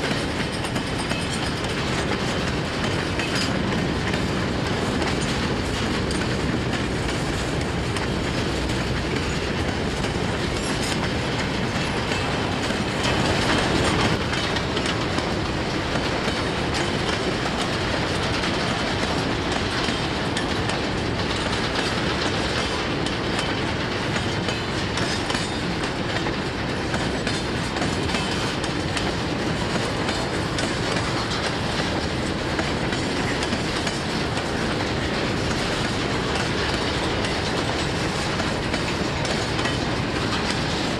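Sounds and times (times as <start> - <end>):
freight train wheels clacking: 0.0 - 40.9.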